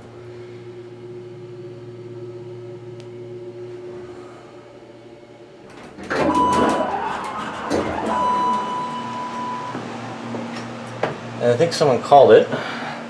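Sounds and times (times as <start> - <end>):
hydraulic elevator hum: 0.0 - 13.0
elevator doors clattering open: 5.6 - 11.5
elevator bell ringing: 5.8 - 11.0.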